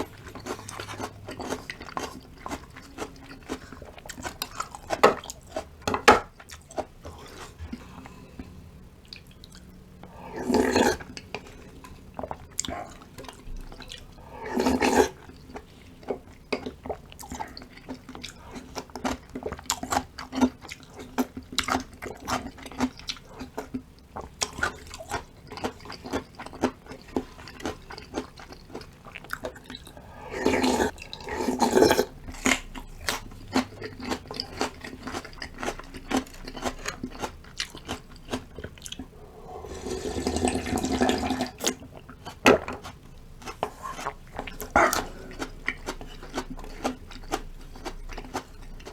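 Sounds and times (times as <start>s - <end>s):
chewing with small crunches: 0.0s - 48.9s
wet slurps of soup: 10.1s - 13.1s, 13.7s - 15.7s, 29.7s - 32.7s, 38.8s - 42.4s, 43.7s - 46.4s.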